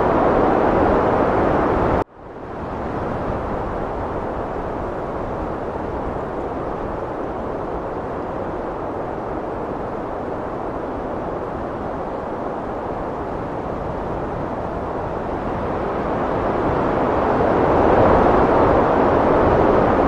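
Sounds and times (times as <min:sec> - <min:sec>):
heavy wind blowing: 0:00.0 - 0:20.0.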